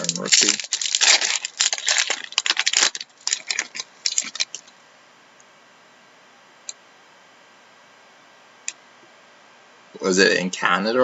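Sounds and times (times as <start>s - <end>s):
card packs crinkling and rustling: 0.0s - 4.7s.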